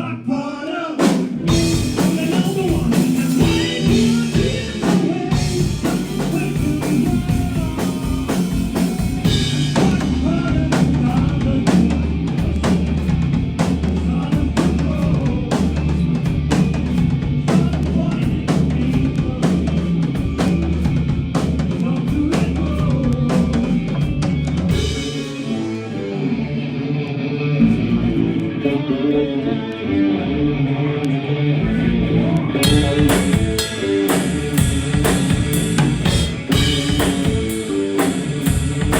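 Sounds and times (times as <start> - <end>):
drum kit: 1.0 - 26.5, 32.6 - 38.9
bass guitar: 1.0 - 38.9
electric guitar: 1.0 - 38.9.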